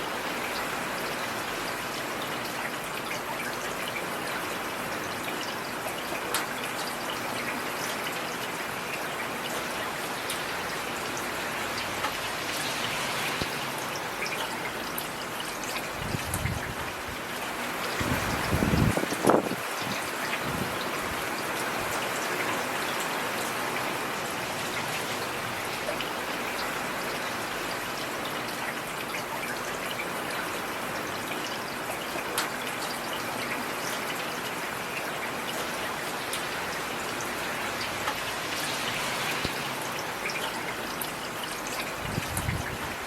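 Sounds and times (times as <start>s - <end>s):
heavy rain hissing: 36.6s - 40.2s.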